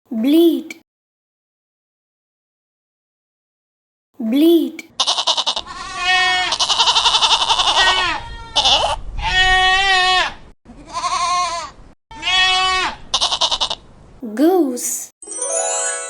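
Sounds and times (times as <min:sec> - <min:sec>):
goat bleating: 0:05.0 - 0:13.8.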